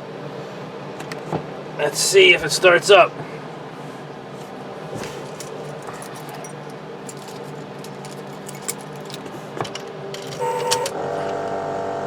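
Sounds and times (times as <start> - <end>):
keys jangling: 5.0 - 11.0.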